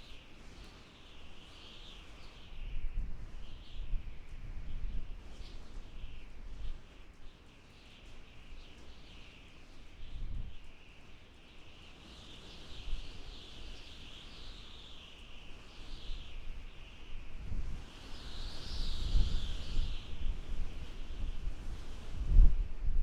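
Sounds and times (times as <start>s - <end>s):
wind blowing in gusts: 0.0s - 7.0s, 11.8s - 23.0s.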